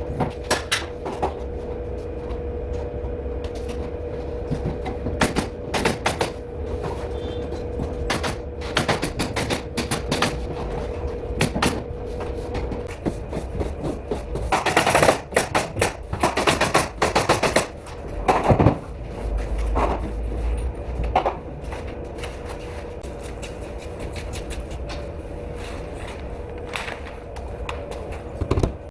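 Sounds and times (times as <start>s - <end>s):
steady hum: 0.0s - 28.9s
pneumatic nail gun firing: 8.1s - 10.4s.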